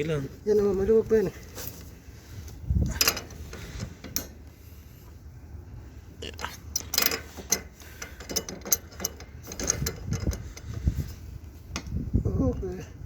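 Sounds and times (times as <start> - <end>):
wrenches clicking and scraping on pipe: 2.8 - 4.7, 6.3 - 12.0.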